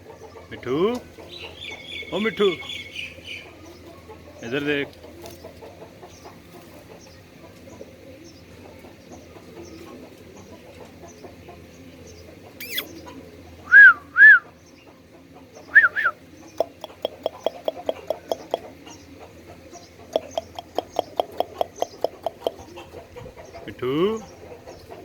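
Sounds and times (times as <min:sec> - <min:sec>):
parrot squawking: 0:12.6 - 0:12.9, 0:15.8 - 0:18.7, 0:20.1 - 0:22.6
parrot clicking: 0:16.6 - 0:18.6, 0:20.2 - 0:22.6.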